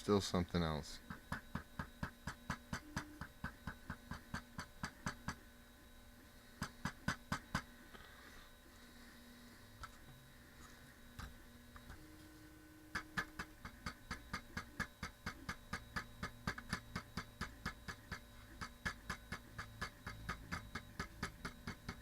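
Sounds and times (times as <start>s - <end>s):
tapping on drone frame: 1.1s - 5.4s.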